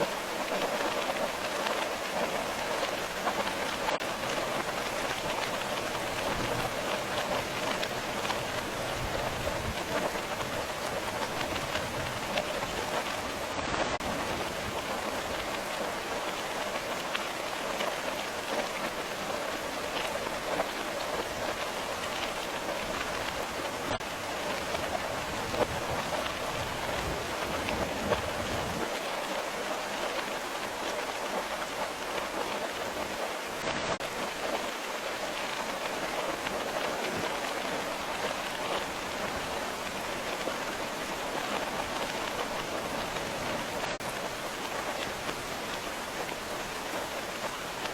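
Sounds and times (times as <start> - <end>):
rain pattering on a surface: 0.0 - 47.9.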